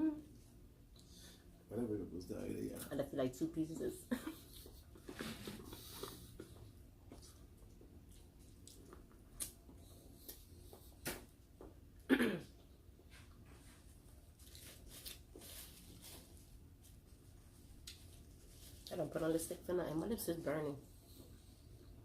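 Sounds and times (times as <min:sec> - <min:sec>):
small clicks and mouth sounds: 0:05.9 - 0:11.8.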